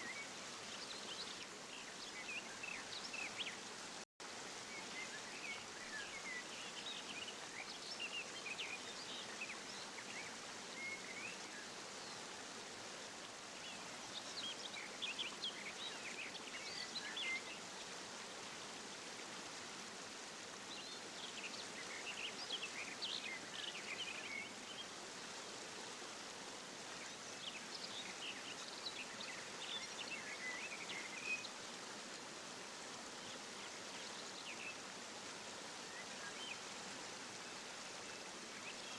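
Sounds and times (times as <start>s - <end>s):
running water rushing: 0.0s - 38.9s
small birds chirping: 26.8s - 38.9s.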